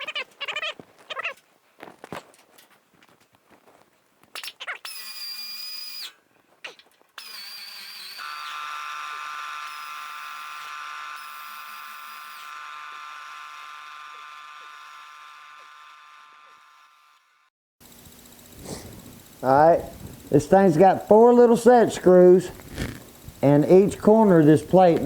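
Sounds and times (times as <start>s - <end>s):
air ratchet whirring: 4.4s - 6.1s, 7.2s - 25.0s.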